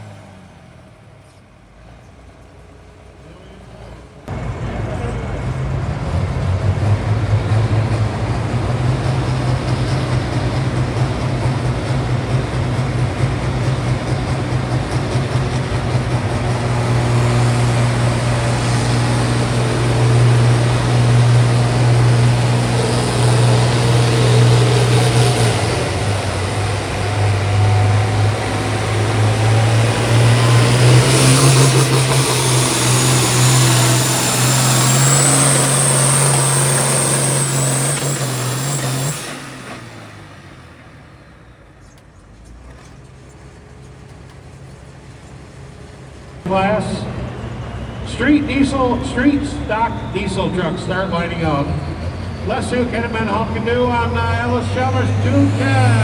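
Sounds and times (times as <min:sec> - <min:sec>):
tractor engine at high revs: 0:00.0 - 0:56.0
high whine: 0:04.3 - 0:42.0, 0:46.5 - 0:56.0.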